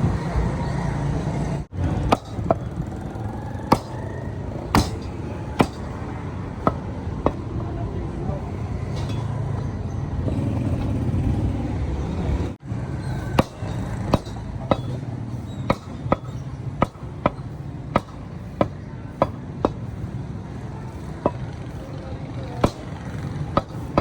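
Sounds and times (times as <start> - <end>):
cleaver chopping meat: 2.0 - 2.6, 3.6 - 7.4, 13.2 - 15.0, 15.6 - 20.0, 22.6 - 24.0.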